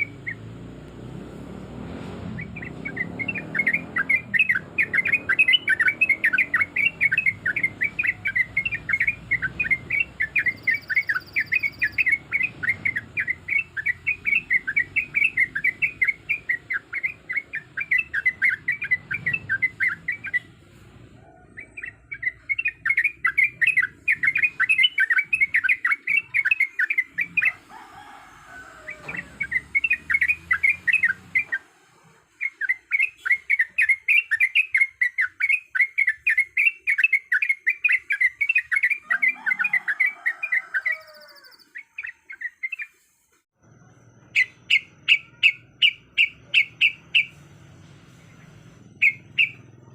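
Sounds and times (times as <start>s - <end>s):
bird singing bubbling chattering notes: 2.4s - 20.5s, 21.6s - 27.6s.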